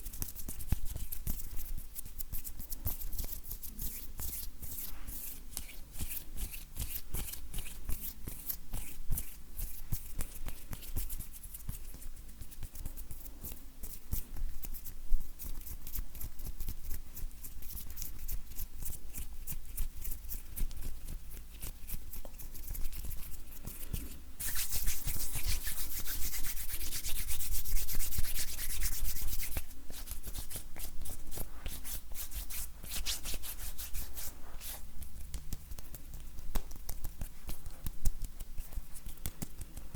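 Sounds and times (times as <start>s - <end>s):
hands rubbing together: 22.3s - 39.9s.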